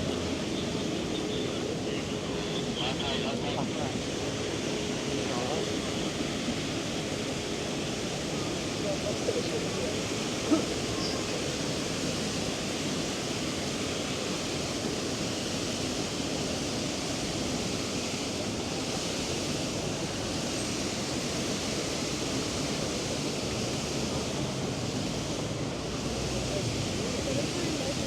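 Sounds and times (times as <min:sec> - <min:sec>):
crowd voices: 0:01.0 - 0:05.9.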